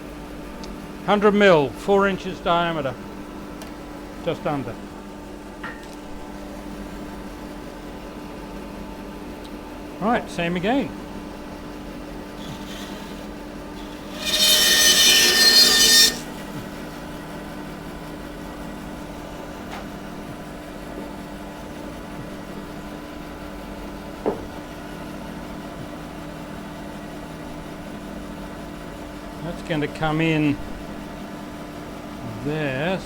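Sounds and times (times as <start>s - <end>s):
power saw humming: 12.3s - 16.6s
saw blade cutting wood: 12.4s - 16.4s.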